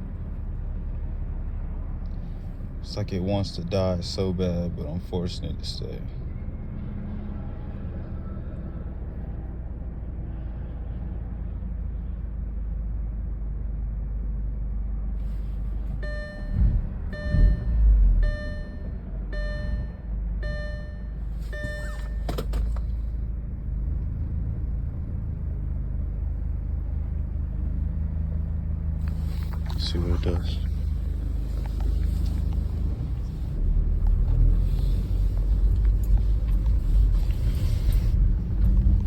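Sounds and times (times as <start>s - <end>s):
heavy thumps: 16.0s - 22.5s
car warning chime: 16.0s - 22.8s.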